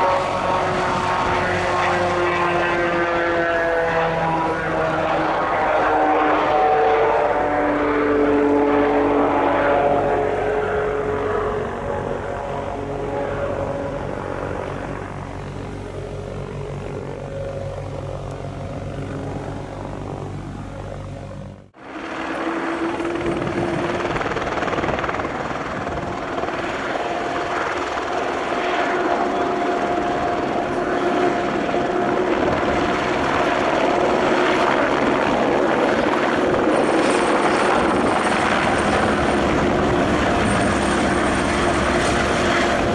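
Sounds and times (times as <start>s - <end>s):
helicopter engine and rotor: 0.0s - 42.9s
high steady whine: 0.0s - 42.9s
turboprop engines running: 0.0s - 42.9s.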